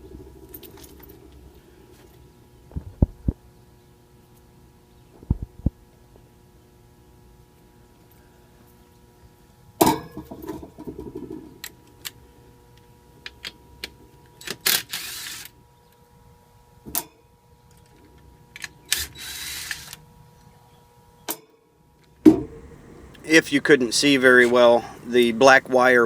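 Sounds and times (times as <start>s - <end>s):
faint electrical hum: 22.3s - 26.0s
rustling hisses: 22.4s - 26.0s.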